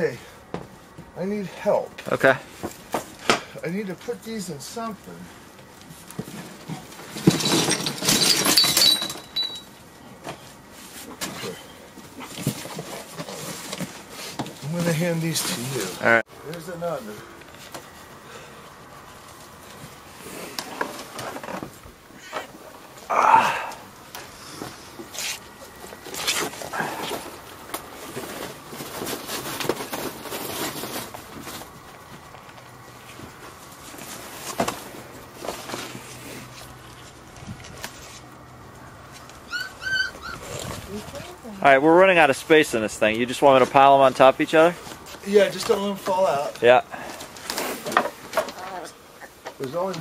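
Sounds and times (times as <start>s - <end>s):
debris clattering and clinking: 6.2s - 9.8s
puppies being handled rustling: 24.0s - 42.3s
puppies squeaking: 39.4s - 40.8s.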